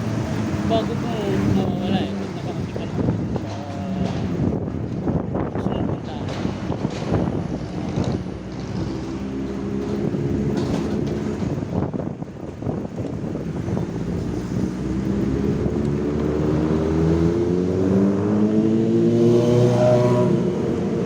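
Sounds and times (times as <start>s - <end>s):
small motorcycle engine running: 0.0s - 4.5s, 12.8s - 21.0s
road and wind noise: 0.0s - 21.0s.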